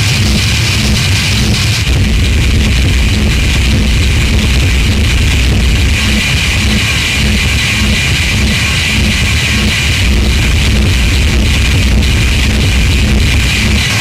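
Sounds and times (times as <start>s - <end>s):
harsh distorted noise music: 0.0s - 14.0s.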